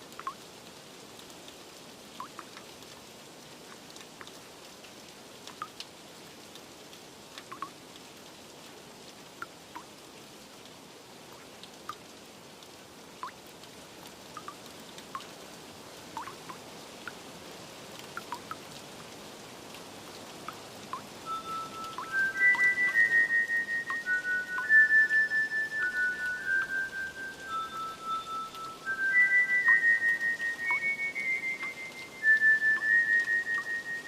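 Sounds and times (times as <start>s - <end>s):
light rain: 0.0s - 34.0s
water drops plinking: 0.2s - 0.4s, 2.2s - 2.6s, 7.5s - 7.8s, 14.4s - 14.6s, 16.2s - 16.6s, 18.1s - 18.6s, 20.5s - 34.0s
soft sustained musical note: 21.3s - 34.0s.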